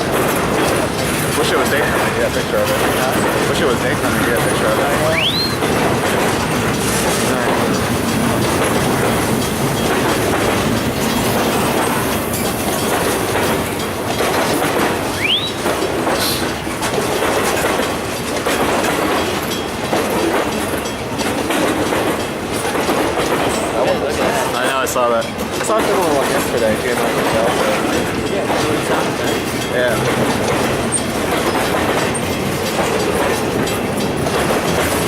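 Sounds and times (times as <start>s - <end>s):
train wheels clattering over rails: 0.0s - 35.0s
rising squeal: 15.1s - 15.6s.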